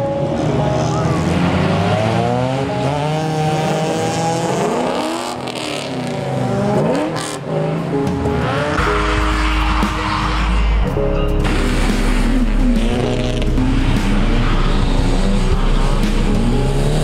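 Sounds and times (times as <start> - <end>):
car engines revving hard: 0.0 - 17.0.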